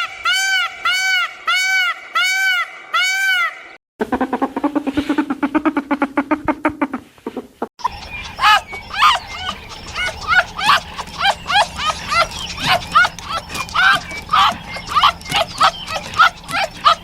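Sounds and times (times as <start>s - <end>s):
repeated pitched animal calls: 0.0s - 17.0s
fast pulsing low animal call: 7.8s - 17.0s.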